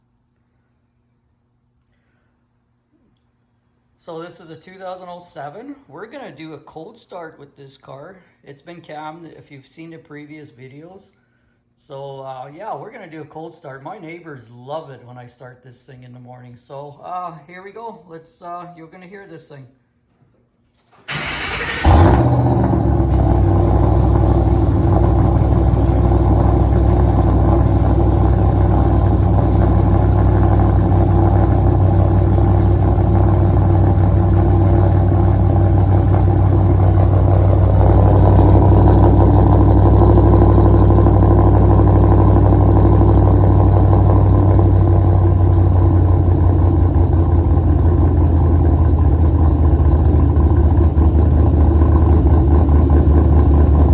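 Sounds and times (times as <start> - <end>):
engine cranking: 21.0 - 26.4
car engine idling loudly: 21.2 - 53.9.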